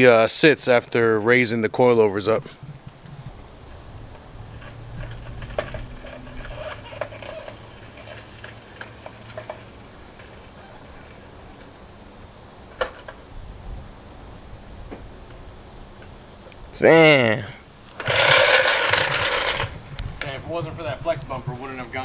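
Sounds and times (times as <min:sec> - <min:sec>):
metallic clanks of floor jack: 0:04.6 - 0:11.2, 0:18.0 - 0:20.4.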